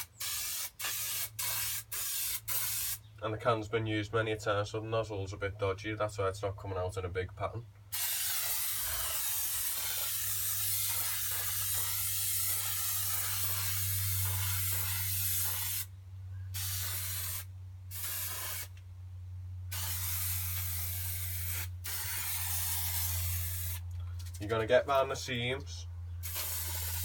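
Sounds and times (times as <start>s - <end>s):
aerosol can hissing: 0.0s - 3.0s, 7.9s - 15.9s, 16.6s - 18.7s, 19.7s - 23.8s, 26.2s - 27.0s
steady low hum: 8.7s - 27.0s.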